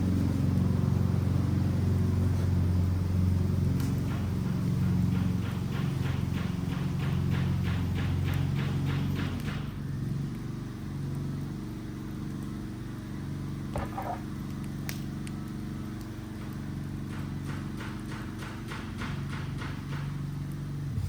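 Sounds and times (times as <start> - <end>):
engine humming: 0.0 - 21.0
wood fire popping: 13.6 - 18.7.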